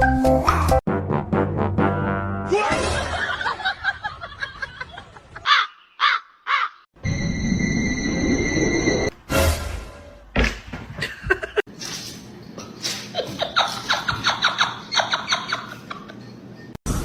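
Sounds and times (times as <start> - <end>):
person laughing: 11.0 - 11.6.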